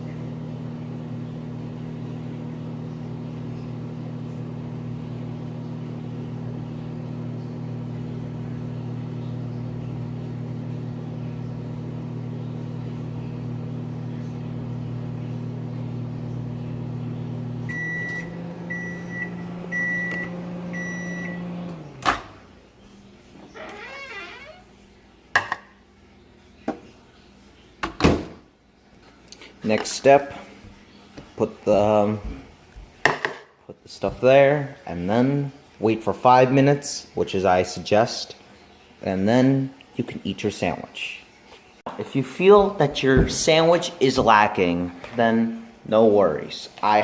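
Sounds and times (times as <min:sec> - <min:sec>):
microwave oven humming: 0:00.0 - 0:25.2
microwave beeps: 0:17.5 - 0:22.0.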